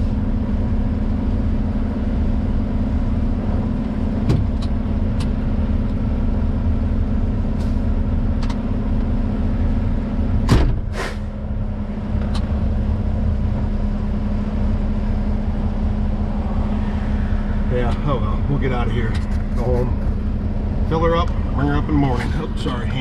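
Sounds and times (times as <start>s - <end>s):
truck engine running: 0.0s - 23.0s
short loud hisses: 10.9s - 11.3s.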